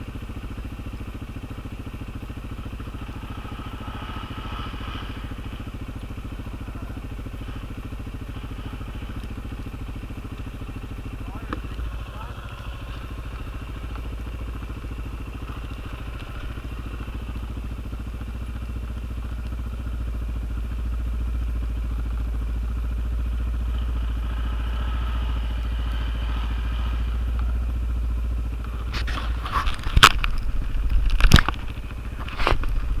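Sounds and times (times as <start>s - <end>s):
atv engine running: 0.0s - 33.0s
loud sharp knocks and crackles: 28.7s - 33.0s.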